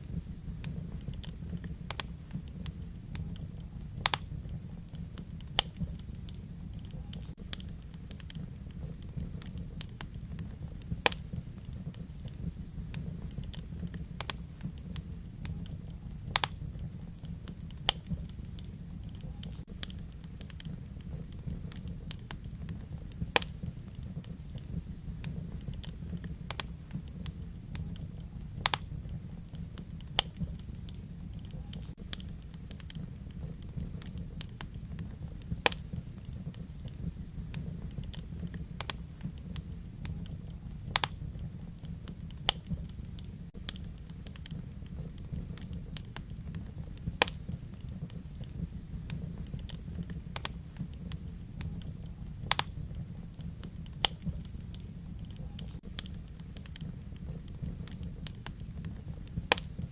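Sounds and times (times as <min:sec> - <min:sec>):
fire flames rumbling: 0:00.0 - 0:59.9
logs crackling and popping: 0:00.0 - 0:59.9
loud wood snaps: 0:01.9 - 0:02.2, 0:04.0 - 0:04.3, 0:11.0 - 0:11.7, 0:12.9 - 0:14.7, 0:15.6 - 0:16.6, 0:17.2 - 0:20.7, 0:23.2 - 0:23.6, 0:25.5 - 0:27.4, 0:28.5 - 0:34.8, 0:35.4 - 0:36.4, 0:37.5 - 0:39.3, 0:40.3 - 0:41.2, 0:41.8 - 0:46.6, 0:47.2 - 0:48.6, 0:49.5 - 0:50.6, 0:52.4 - 0:52.8, 0:53.8 - 0:58.8, 0:59.4 - 0:59.8.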